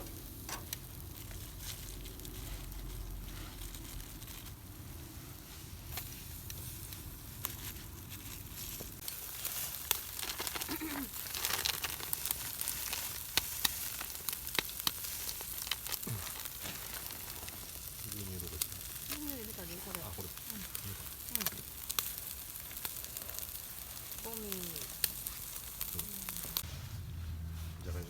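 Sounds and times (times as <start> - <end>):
meat sizzling on a grill: 0.0 - 26.7
fat spitting and popping: 15.8 - 16.9.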